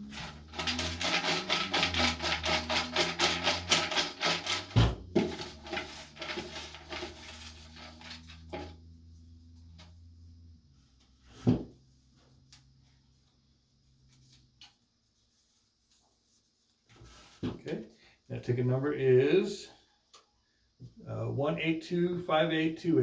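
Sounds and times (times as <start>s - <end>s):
paper tickets rustling: 0.0s - 8.6s.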